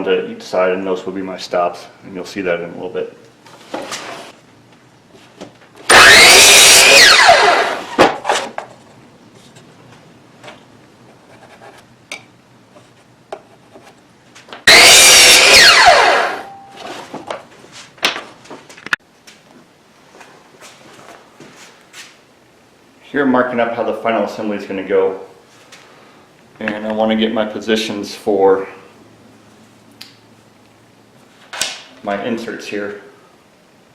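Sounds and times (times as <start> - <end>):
saw blade winding down: 5.9 - 8.0, 14.7 - 16.6
power saw cutting wood: 5.9 - 8.1, 14.7 - 16.5.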